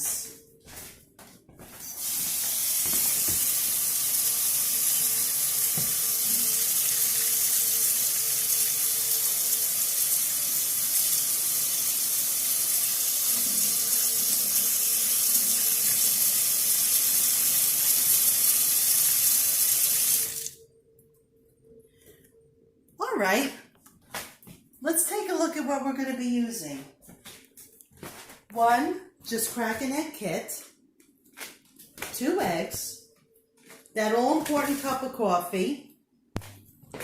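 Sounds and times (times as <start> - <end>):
tap water running: 2.0 - 20.6.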